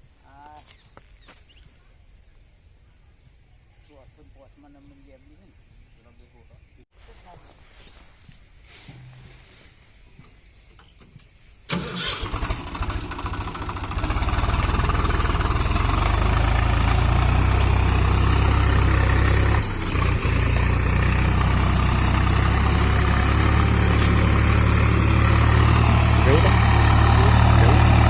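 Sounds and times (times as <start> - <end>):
tractor diesel engine starting: 11.7 - 28.0.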